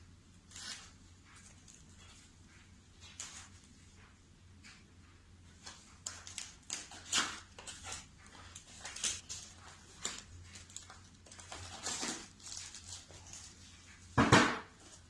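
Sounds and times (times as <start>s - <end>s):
packaging rustling: 5.6s - 13.7s.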